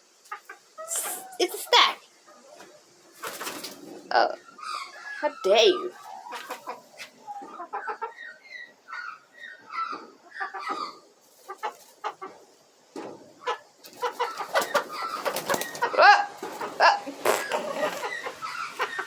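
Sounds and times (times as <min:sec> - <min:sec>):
hens clucking: 0:00.1 - 0:19.0
hen squawk: 0:00.8 - 0:02.0, 0:13.5 - 0:19.0.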